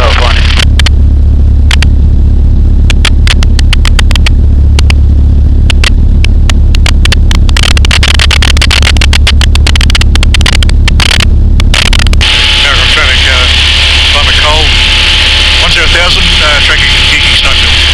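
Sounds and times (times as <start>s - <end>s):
sharp crackling clicks: 0.0s - 1.0s, 1.6s - 1.9s, 2.8s - 5.0s, 5.6s - 12.2s
aircraft engine droning: 0.0s - 17.9s.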